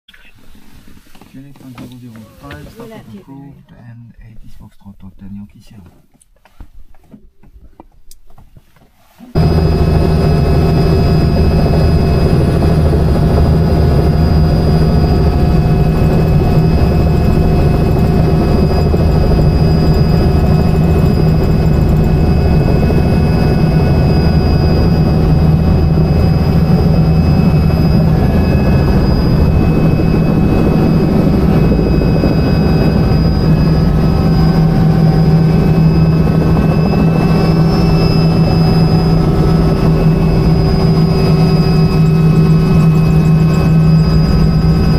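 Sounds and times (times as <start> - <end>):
helicopter engine and rotor: 9.4 - 44.9.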